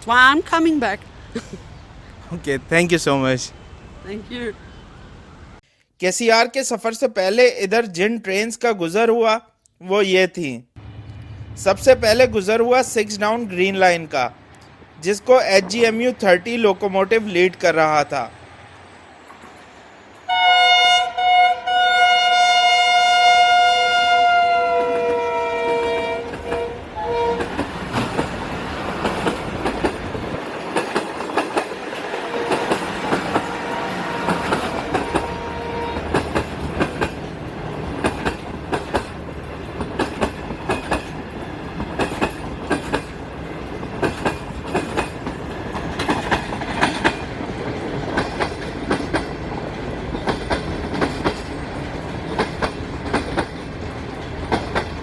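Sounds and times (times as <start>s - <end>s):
locomotive multi-tone horn: 20.3s - 27.6s, 32.1s - 36.3s
train wheels clattering over rail joints: 27.4s - 33.6s, 36.0s - 55.0s.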